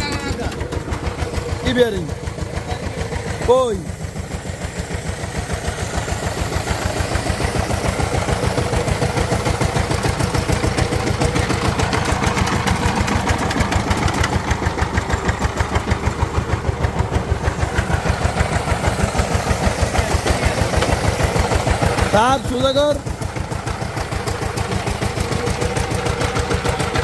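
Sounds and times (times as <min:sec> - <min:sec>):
diesel engine chugging: 0:00.0 - 0:27.0.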